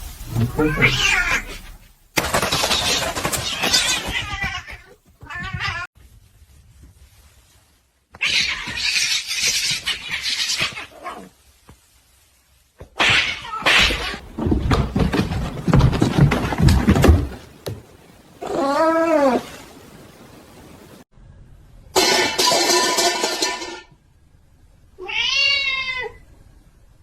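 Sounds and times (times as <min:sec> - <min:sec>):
cats yowling: 0:00.4 - 0:01.6.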